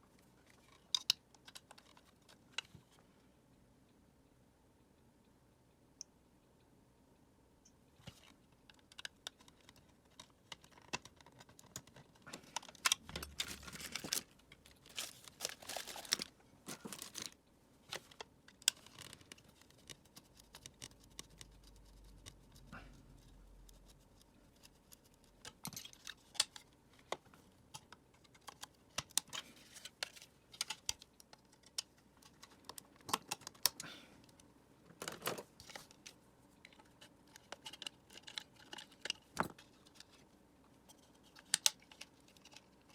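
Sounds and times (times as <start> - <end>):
plastic parts clicking and tapping: 0.5 - 3.0, 8.0 - 22.5, 23.7 - 40.2, 40.9 - 42.9
plastic scraping and rasping: 9.0 - 17.3.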